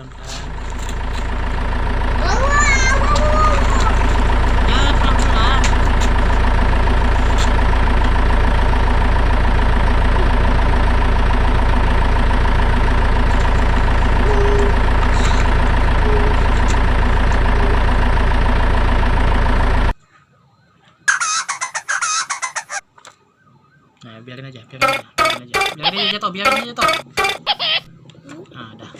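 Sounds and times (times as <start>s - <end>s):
toy electronic engine drone: 13.2s - 18.4s, 21.1s - 22.8s, 24.8s - 27.9s
short warbling siren: 13.9s - 18.1s, 24.8s - 27.8s.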